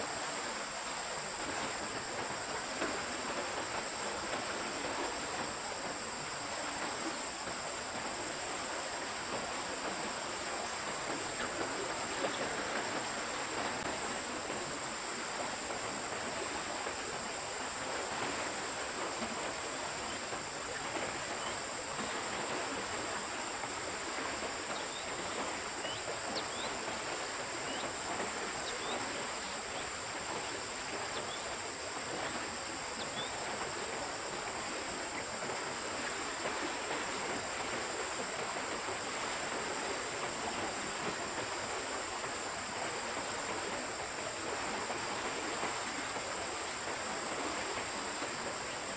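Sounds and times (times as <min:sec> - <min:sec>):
stream water running: 0:00.0 - 0:48.9.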